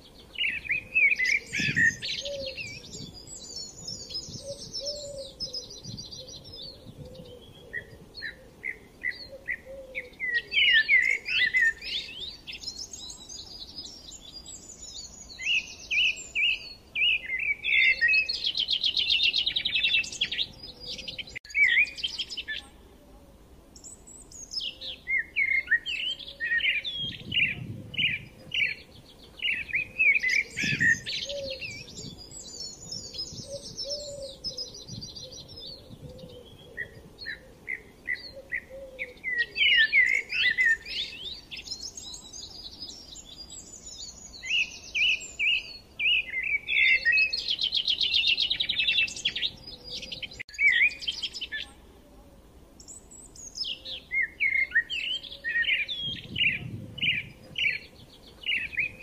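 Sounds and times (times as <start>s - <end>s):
songbirds singing: 0.0s - 59.0s.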